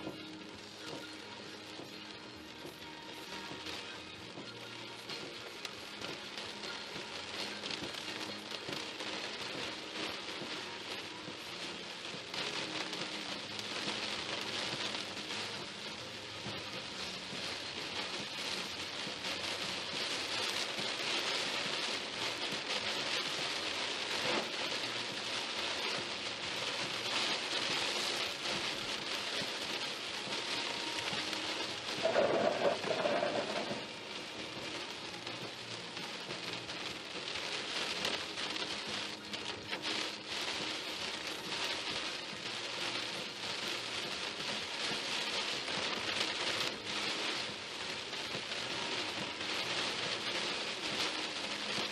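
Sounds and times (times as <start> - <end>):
heavy rain on a car: 0.0 - 51.9.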